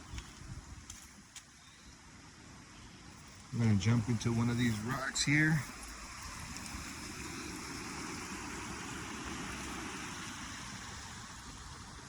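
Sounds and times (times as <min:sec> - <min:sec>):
river rushing over rocks: 0:03.8 - 0:12.0.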